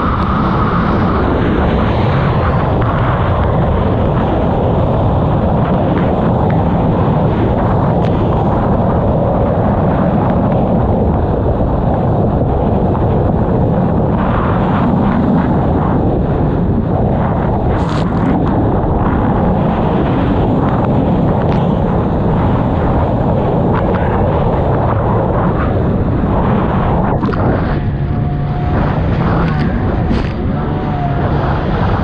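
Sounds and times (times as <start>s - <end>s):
watercraft engine running: 0.0s - 32.0s
wind buffeting microphone: 0.0s - 32.0s.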